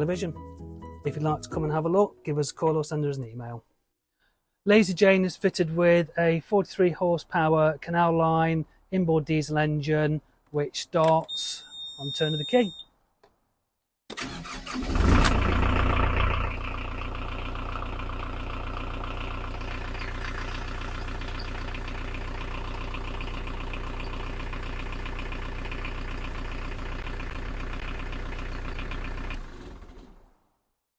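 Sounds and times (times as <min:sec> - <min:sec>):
diesel engine starting and idling: 0:14.1 - 0:30.6.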